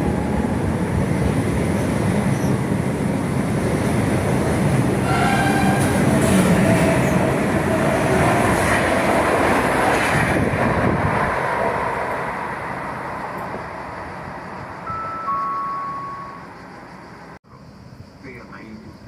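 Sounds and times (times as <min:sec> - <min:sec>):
train wheels on rails: 0:00.0 - 0:15.6.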